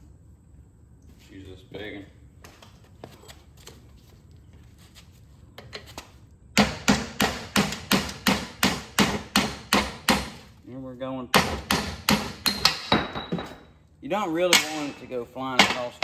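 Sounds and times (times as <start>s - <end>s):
hammer striking metal: 6.6s - 10.4s, 11.4s - 13.7s, 14.5s - 16.0s.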